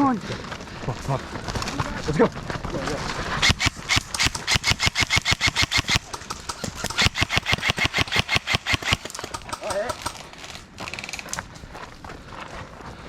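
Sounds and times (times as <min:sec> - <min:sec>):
paintball marker firing: 0:03.4 - 0:10.7.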